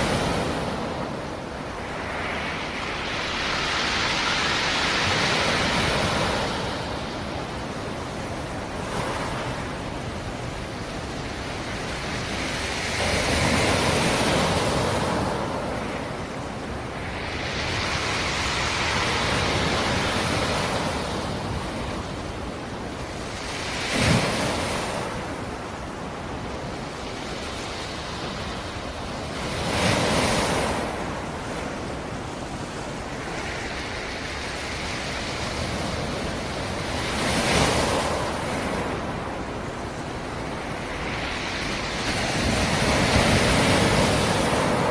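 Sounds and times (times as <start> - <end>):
sea waves breaking on rocks: 0.0 - 7.6.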